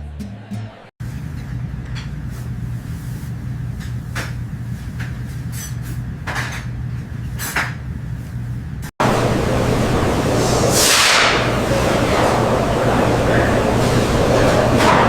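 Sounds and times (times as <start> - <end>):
steady low hum: 1.0 - 15.0
loud even rushing noise: 9.0 - 15.0.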